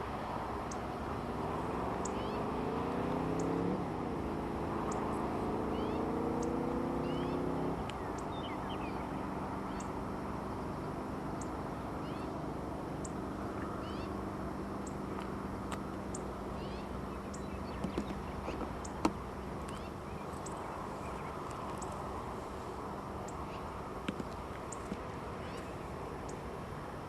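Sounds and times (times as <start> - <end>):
small birds chirping: 0.4 - 27.0
steady rushing noise: 7.8 - 27.0.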